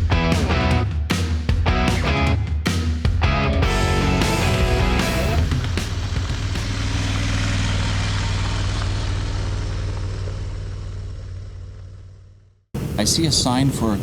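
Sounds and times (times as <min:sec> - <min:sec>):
motorcycle engine droning: 0:03.6 - 0:14.0.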